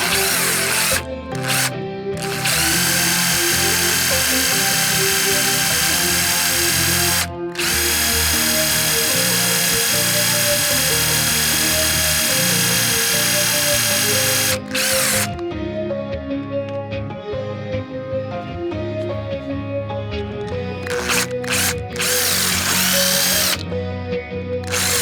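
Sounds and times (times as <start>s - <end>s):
electric rotary tool running: 0.0s - 15.4s, 20.4s - 23.6s, 24.6s - 25.0s
background music: 0.0s - 25.0s.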